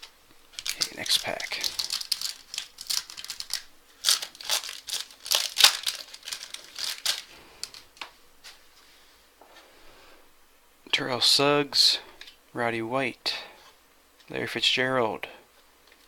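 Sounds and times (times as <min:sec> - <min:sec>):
wrapper tearing and crinkling: 0:00.0 - 0:07.9.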